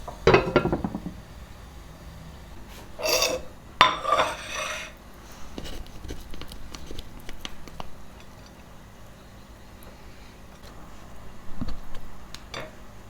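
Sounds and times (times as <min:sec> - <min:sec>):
kitchenware scraping clatter: 0:00.3 - 0:01.1, 0:02.9 - 0:05.0.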